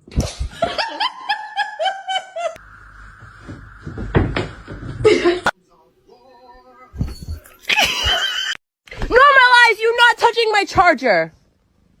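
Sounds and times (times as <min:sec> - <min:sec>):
steady hissing noise: 0:02.5 - 0:06.1
person laughing: 0:05.0 - 0:05.5, 0:07.6 - 0:08.5.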